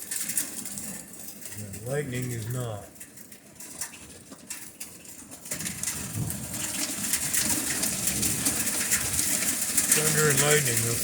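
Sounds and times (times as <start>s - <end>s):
heavy rain and hail: 0.0s - 11.0s
rolling thunder: 5.7s - 11.0s.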